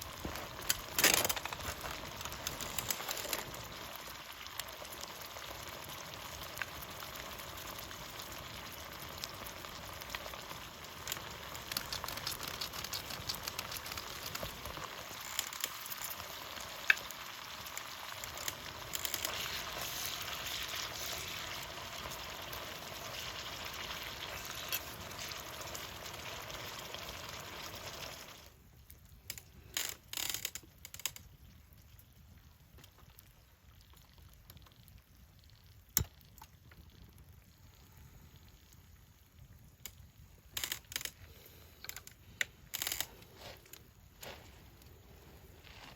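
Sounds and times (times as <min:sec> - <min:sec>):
food sizzling in a pan: 0:00.0 - 0:28.5.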